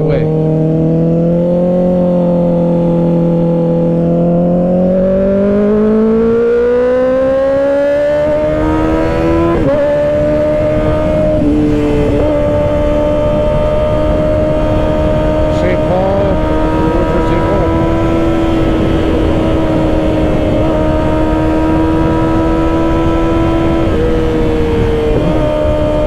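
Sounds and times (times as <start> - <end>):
motorcycle engine accelerating: 0.0 - 26.0
wind rush: 8.1 - 26.0.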